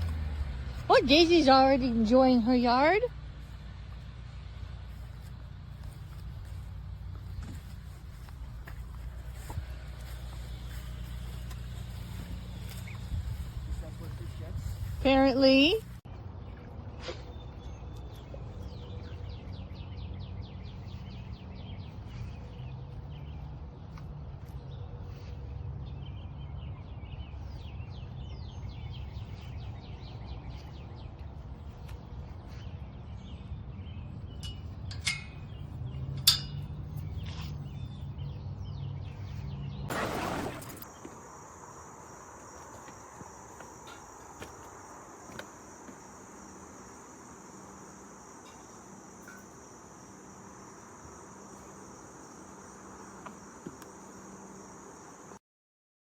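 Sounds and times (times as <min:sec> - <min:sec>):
crickets chirping: 0:04.9 - 0:15.9, 0:39.9 - 0:55.4
faint chirps: 0:40.6 - 0:55.4.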